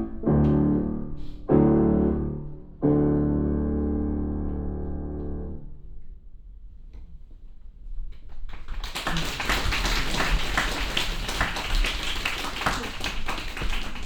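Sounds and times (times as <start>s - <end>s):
audience clapping: 8.3s - 14.0s.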